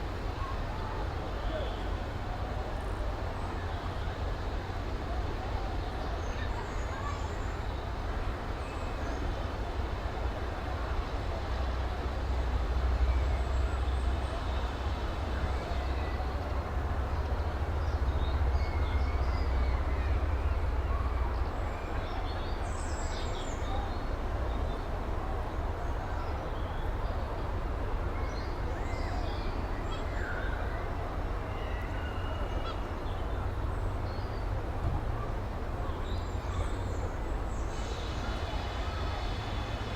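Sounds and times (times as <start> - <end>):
steam locomotive rumbling: 30.9 - 39.9.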